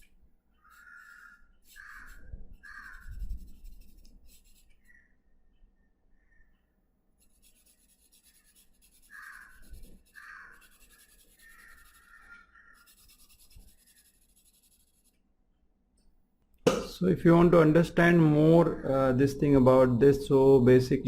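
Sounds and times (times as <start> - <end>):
drawing tool scratching paper: 0.6 - 4.9, 7.2 - 15.2.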